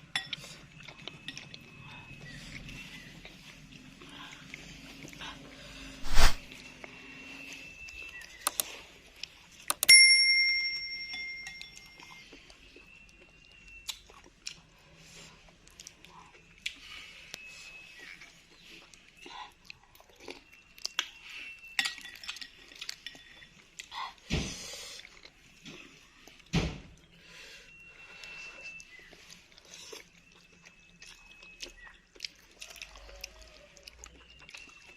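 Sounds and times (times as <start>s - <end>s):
light clicks: 8.5s - 8.7s
utensil clinking on ringing bowl: 9.8s - 12.2s.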